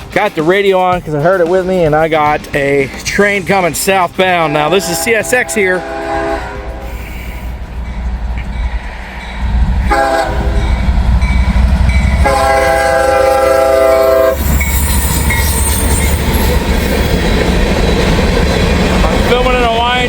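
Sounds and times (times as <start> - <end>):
diesel locomotive rumble: 0.0 - 20.0
steel wheels hissing on rails: 0.0 - 20.0
locomotive air horn: 4.4 - 7.6, 9.8 - 10.9, 12.1 - 15.0.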